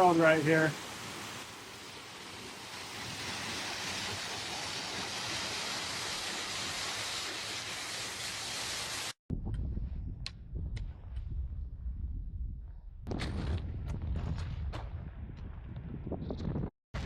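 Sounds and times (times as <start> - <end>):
stream water flowing: 0.0 - 8.8
low rumble: 9.3 - 16.5.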